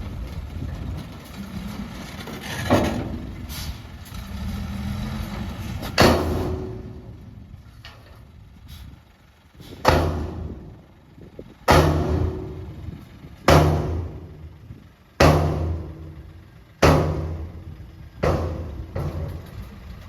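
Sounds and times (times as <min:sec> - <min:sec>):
diesel engines running: 0:00.0 - 0:20.0
sudden loud bangs: 0:13.5 - 0:14.4, 0:15.2 - 0:16.2.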